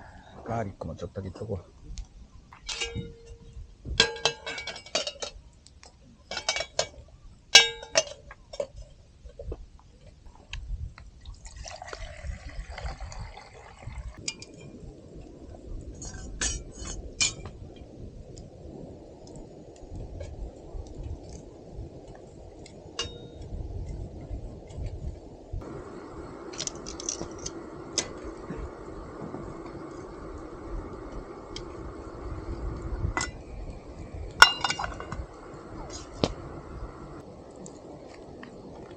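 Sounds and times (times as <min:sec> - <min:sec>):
stove and pan hissing: 0:25.0 - 0:38.9.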